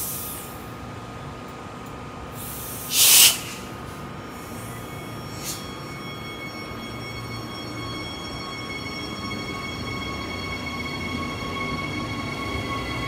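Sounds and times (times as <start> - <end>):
short loud hiss: 2.4 - 3.7.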